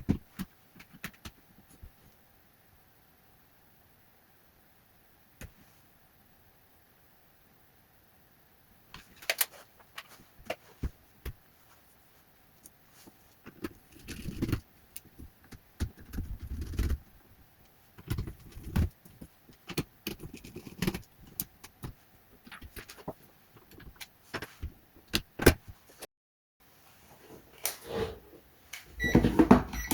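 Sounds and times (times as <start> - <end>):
hands handling small parts and tools: 8.9 - 11.4.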